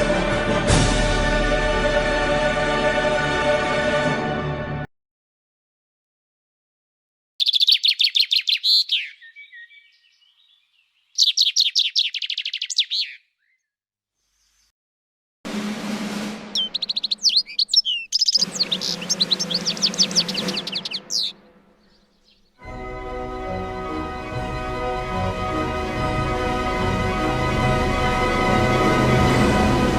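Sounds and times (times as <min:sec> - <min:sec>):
songbird singing high notes: 0:07.4 - 0:13.8, 0:16.5 - 0:22.6.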